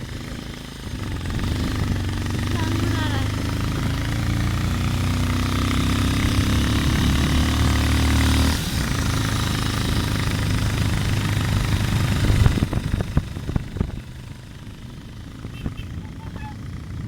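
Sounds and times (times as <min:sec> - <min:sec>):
motorcycle engine running: 0:00.0 - 0:17.0
road noise: 0:00.0 - 0:17.0
wind noise: 0:11.0 - 0:14.2.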